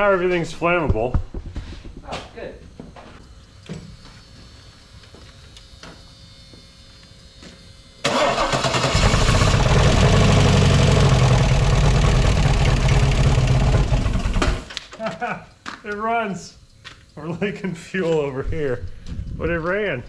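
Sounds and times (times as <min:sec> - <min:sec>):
car engine starting and idling: 0:08.0 - 0:14.7.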